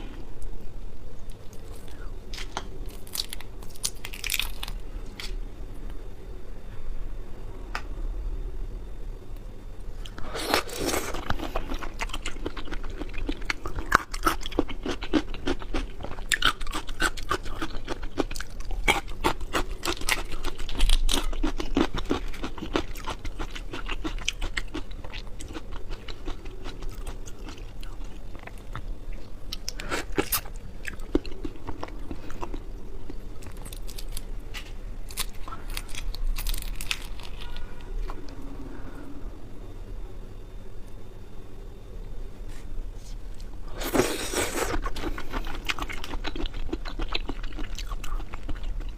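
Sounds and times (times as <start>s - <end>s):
chewing shrimp wet crunching: 10.8s - 34.2s, 35.1s - 37.6s, 43.9s - 48.9s.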